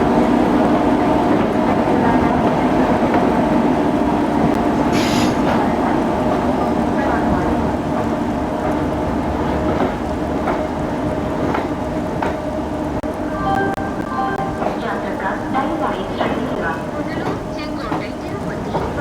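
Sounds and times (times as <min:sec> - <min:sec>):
train wheel clacks: 0:00.0 - 0:19.0
train wheels rumbling on track: 0:00.0 - 0:19.0
short hiss: 0:04.9 - 0:05.4.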